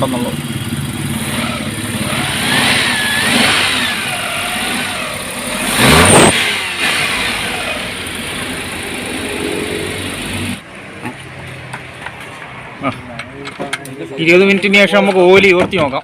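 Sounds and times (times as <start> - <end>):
car engine revving and idling: 0.0 - 10.7.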